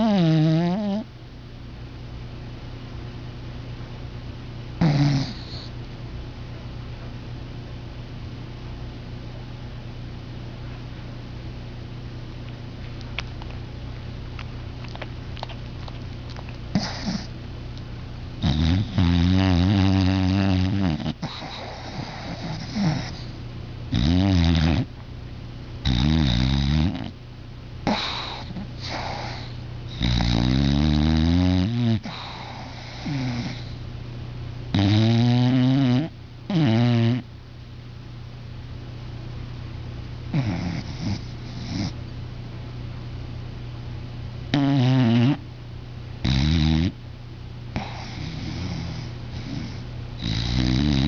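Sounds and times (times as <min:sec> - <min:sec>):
dog snoring: 0:00.0 - 0:01.1, 0:04.8 - 0:05.8, 0:15.8 - 0:17.3, 0:18.4 - 0:24.9, 0:25.8 - 0:27.2, 0:27.8 - 0:33.8, 0:34.7 - 0:37.3, 0:40.3 - 0:42.0, 0:44.5 - 0:45.4, 0:46.2 - 0:47.0, 0:47.7 - 0:51.0.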